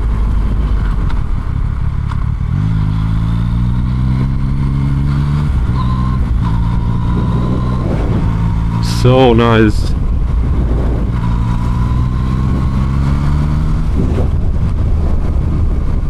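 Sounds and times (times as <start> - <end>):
motorcycle engine running: 0.0 - 16.0
road noise: 0.0 - 16.0
wind noise: 4.0 - 16.0.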